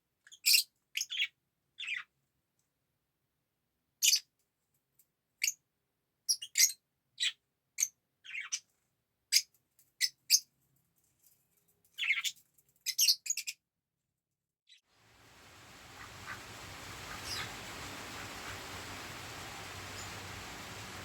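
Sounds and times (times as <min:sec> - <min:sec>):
faint background hiss: 0:14.9 - 0:21.0
bird chirping: 0:15.2 - 0:21.0.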